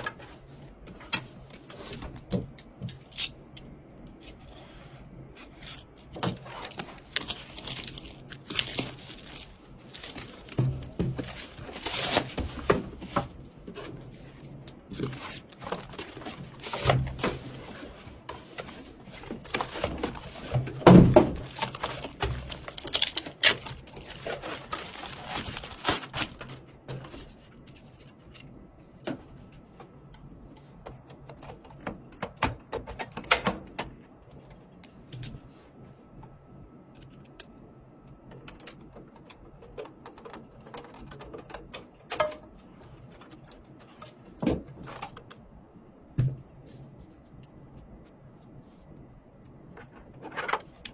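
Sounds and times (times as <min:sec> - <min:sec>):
rustling of objects handled: 0:00.0 - 0:28.7.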